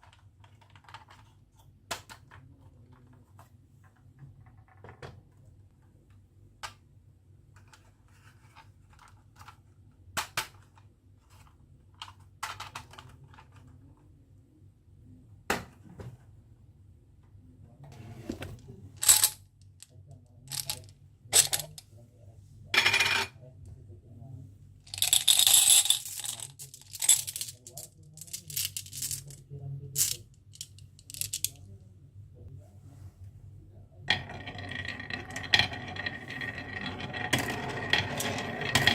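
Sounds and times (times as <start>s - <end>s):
marbles clattering down a run: 34.1s - 38.9s.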